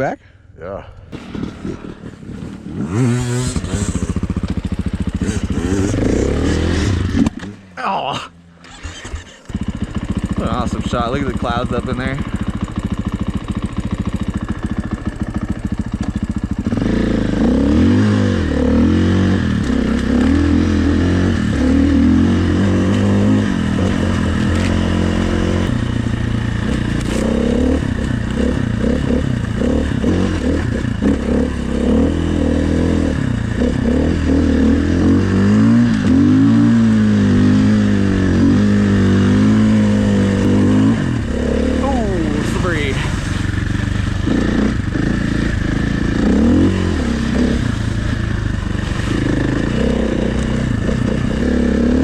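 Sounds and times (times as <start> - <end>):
dirt bike engine revving: 1.1 - 7.8, 8.4 - 52.0.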